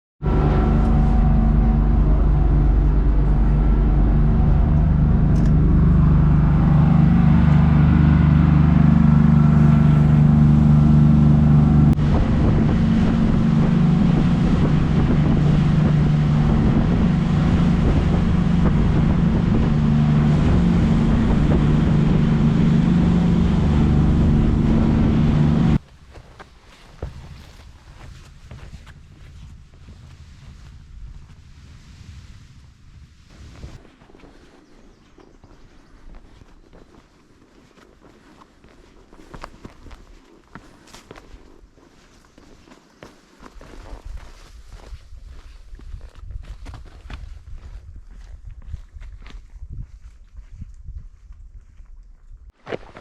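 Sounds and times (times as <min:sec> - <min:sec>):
engine drone: 0:00.2 - 0:25.8.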